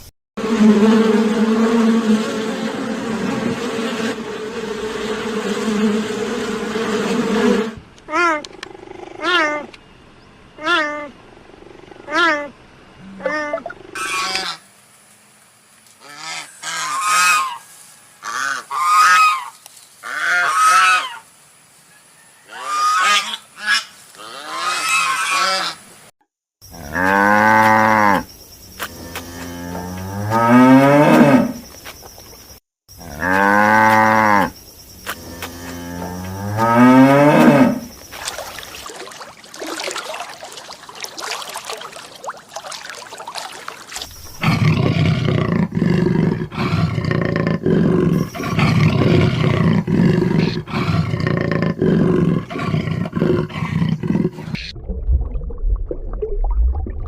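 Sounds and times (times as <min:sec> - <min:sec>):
cow mooing: 0:33.0 - 0:34.5, 0:35.2 - 0:37.9.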